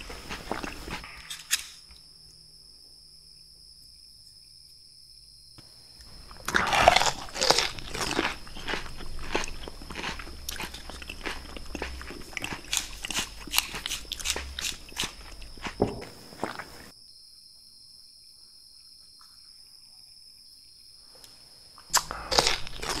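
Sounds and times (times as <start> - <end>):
crunchy chewing: 0.0 - 1.7, 6.0 - 16.9, 21.2 - 23.0
crisp bite into pepper: 6.4 - 15.8.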